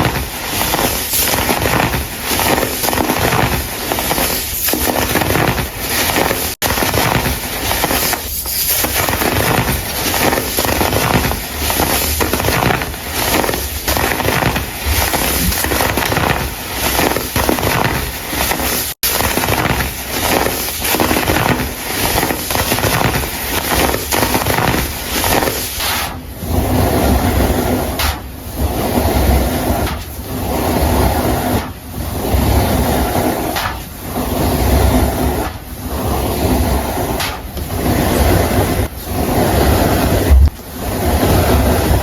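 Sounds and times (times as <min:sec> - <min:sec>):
baking soda crumble crunching: 0:00.0 - 0:25.8
gritty powder swishing: 0:00.0 - 0:42.0.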